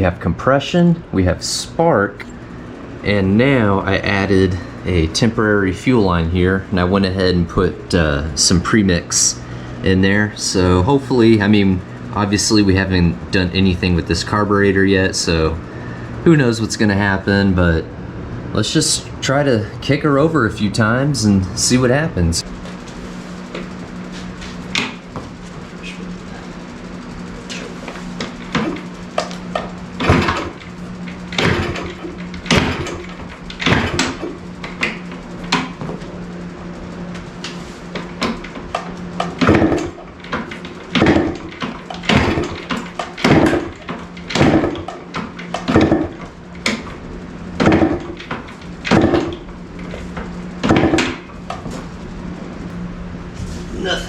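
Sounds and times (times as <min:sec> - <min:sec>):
kickstarter clunking engine over: 0:23.4 - 0:52.2.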